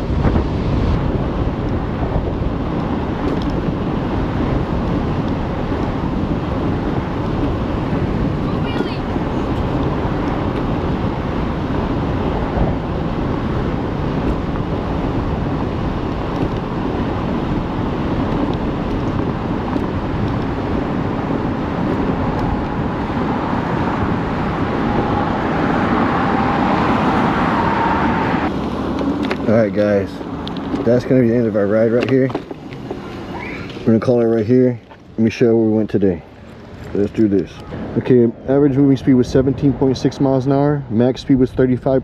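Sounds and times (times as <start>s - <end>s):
road and tyre noise: 0.0s - 42.0s
wind on microphone: 0.0s - 42.0s.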